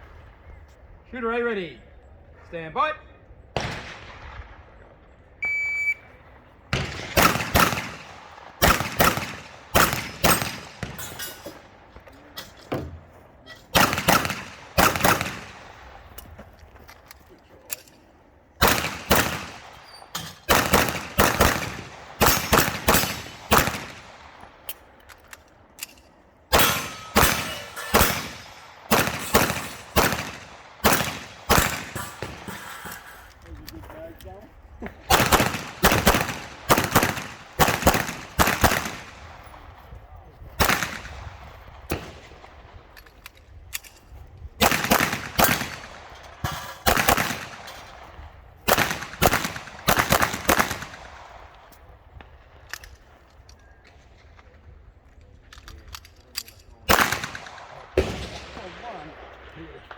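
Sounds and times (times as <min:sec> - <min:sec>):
pistol shots: 0:03.6 - 0:04.7, 0:06.7 - 0:12.1, 0:13.7 - 0:16.2, 0:18.6 - 0:25.0, 0:26.5 - 0:32.7, 0:35.0 - 0:39.8, 0:40.6 - 0:43.0, 0:44.6 - 0:53.3, 0:56.9 - 0:59.9
electronic timer beep: 0:05.4 - 0:06.1.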